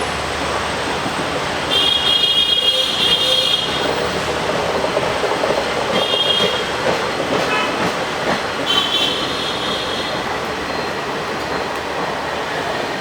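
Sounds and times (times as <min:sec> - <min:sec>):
passing train running noise: 0:00.0 - 0:13.0
locomotive horn blasts: 0:01.7 - 0:03.8, 0:06.0 - 0:06.7, 0:08.7 - 0:10.2.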